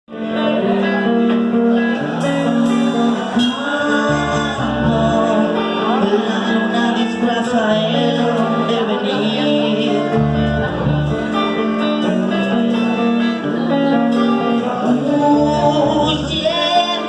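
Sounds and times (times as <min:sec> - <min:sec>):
live band music: 0:00.1 - 0:17.0
strummed acoustic guitar: 0:00.1 - 0:17.0
deep low notes: 0:02.0 - 0:06.0, 0:10.1 - 0:11.5.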